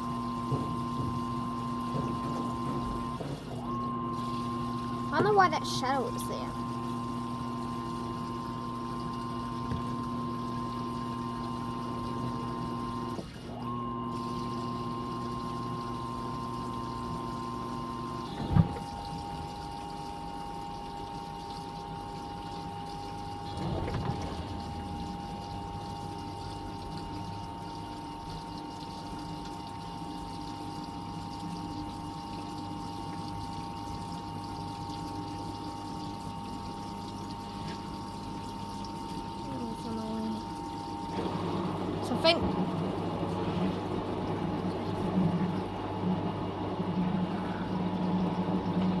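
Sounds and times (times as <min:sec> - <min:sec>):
washing machine motor whine: 0:00.0 - 0:49.0
water being pumped out: 0:00.0 - 0:49.0
washing machine knock: 0:00.4 - 0:03.1.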